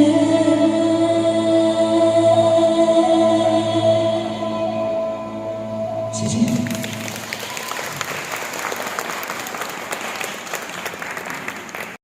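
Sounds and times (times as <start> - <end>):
backing music: 0.0 - 9.2
audience applauding: 6.4 - 12.0.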